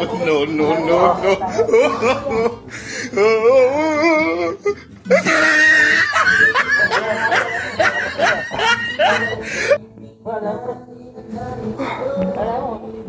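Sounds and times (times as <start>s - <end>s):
laughter in rhythmic bursts: 0.0s - 2.9s, 5.1s - 9.8s
wavering pitched vocal sound: 0.0s - 9.8s
music: 0.0s - 13.0s.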